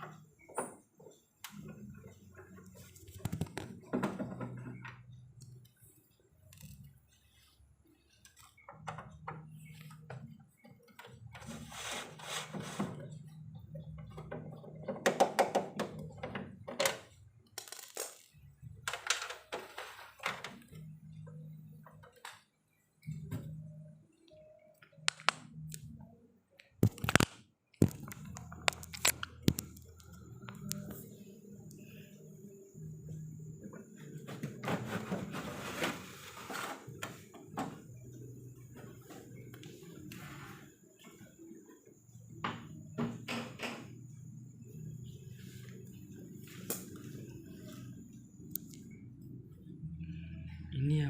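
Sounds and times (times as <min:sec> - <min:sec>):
hands and tools clicking and knocking: 0:00.0 - 0:05.6, 0:13.0 - 0:20.6
low hum: 0:44.0 - 0:51.0.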